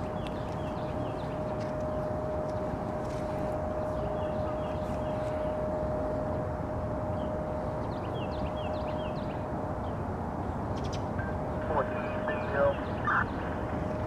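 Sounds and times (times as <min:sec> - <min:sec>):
constant mid-pitched hum: 0:00.0 - 0:14.0
outdoor background rumble: 0:00.0 - 0:14.0.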